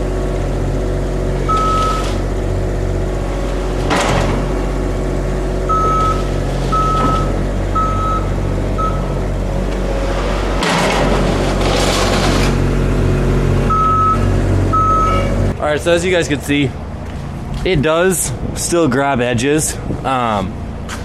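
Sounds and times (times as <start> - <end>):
plow engine running: 0.0 - 21.0
plow scraping pavement: 0.0 - 21.0
reversing beeper: 1.4 - 2.2, 5.7 - 9.2, 13.7 - 15.4.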